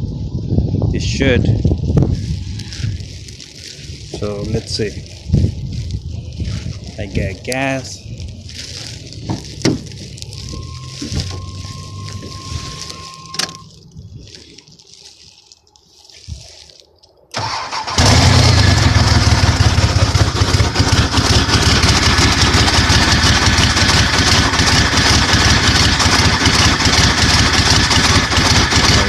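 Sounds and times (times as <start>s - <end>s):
engine cranking: 17.3s - 29.0s
loud engine running: 17.4s - 29.0s.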